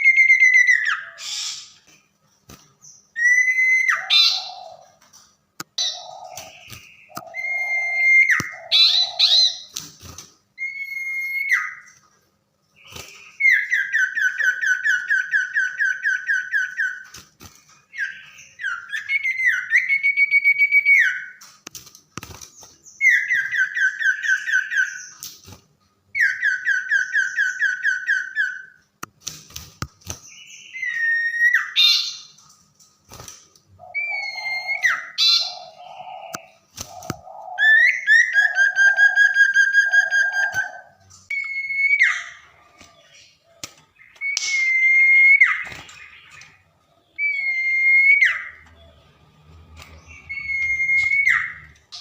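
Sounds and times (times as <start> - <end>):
bird singing buzzy trills: 2.7 - 5.0, 5.7 - 9.8, 33.8 - 52.0.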